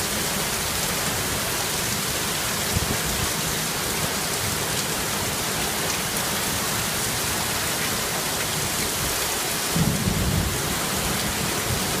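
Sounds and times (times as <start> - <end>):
heavy rain falling: 0.0 - 12.0
low thunder rumble: 9.7 - 12.0.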